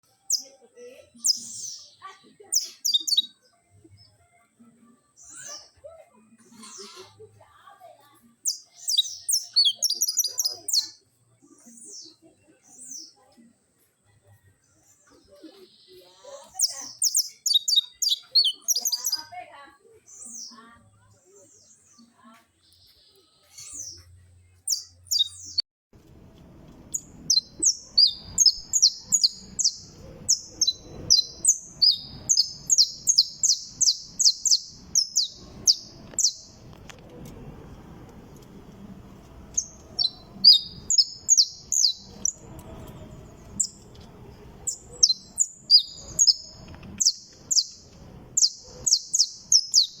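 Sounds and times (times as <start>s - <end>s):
finch singing: 0.2s - 3.4s, 8.4s - 11.0s, 15.6s - 19.4s, 24.7s - 25.6s, 26.8s - 36.6s, 38.3s - 50.0s.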